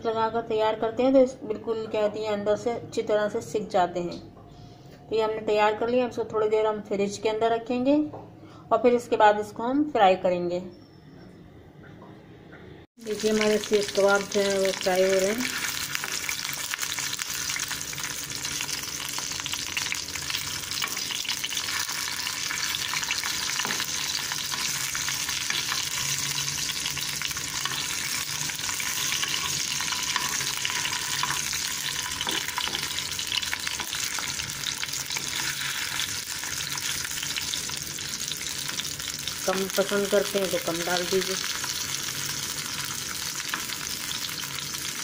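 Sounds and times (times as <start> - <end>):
kebabs sizzling in oil: 13.0 - 45.0.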